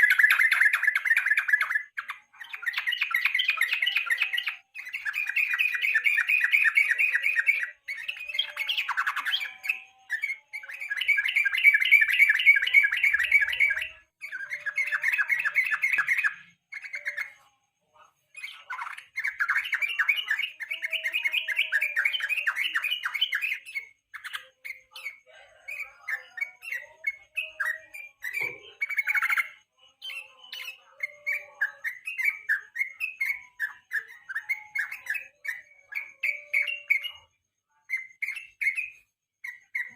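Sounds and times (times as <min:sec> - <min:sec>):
bird singing chattering notes: 0:00.0 - 0:39.9.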